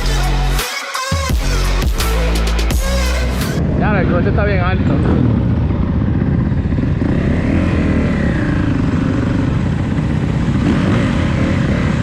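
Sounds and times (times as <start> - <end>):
motorcycle engine revving: 2.7 - 12.0
motorcycle engines running: 3.0 - 12.0.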